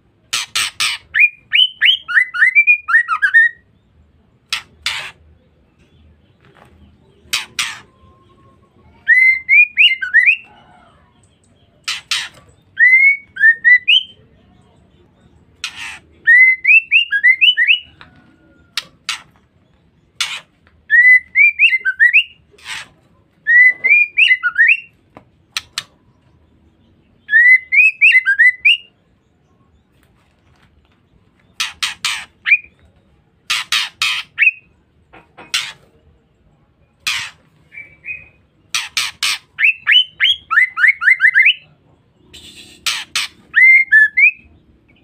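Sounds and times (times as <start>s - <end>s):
bird whistling calls: 7.3s - 10.6s, 11.9s - 14.2s, 15.6s - 18.1s, 20.2s - 22.4s, 27.2s - 28.9s, 37.1s - 41.7s, 42.3s - 44.5s.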